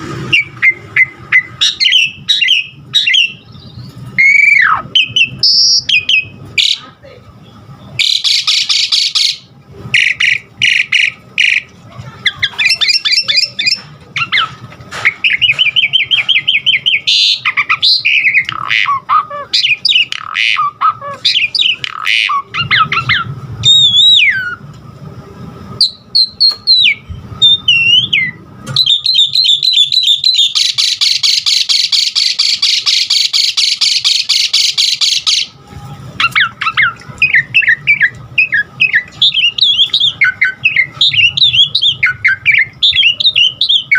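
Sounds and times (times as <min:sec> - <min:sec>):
starling singing whistles: 0:00.3 - 0:06.8, 0:07.8 - 0:24.6, 0:25.8 - 0:35.6, 0:36.2 - 0:43.9
harsh rasping bird chatter: 0:08.0 - 0:24.5, 0:28.8 - 0:35.5.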